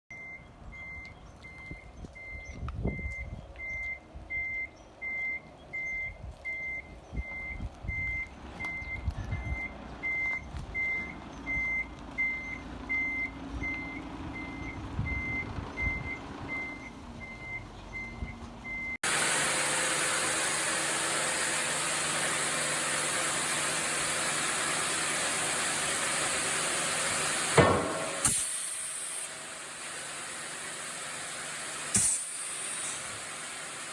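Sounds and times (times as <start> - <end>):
reversing alarm beeping: 0.1 - 19.0
low engine rumble: 0.1 - 33.9
loud rushing machine noise: 25.9 - 30.7
heavy clunks: 27.6 - 28.5
sharp bang: 27.6 - 28.6.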